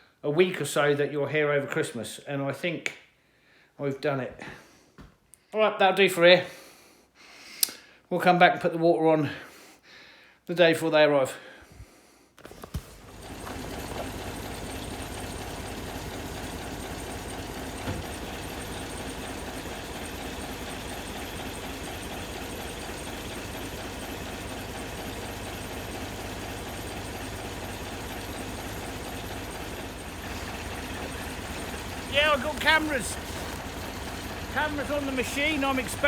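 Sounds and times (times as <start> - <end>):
vehicle engine running: 12.5 - 36.0.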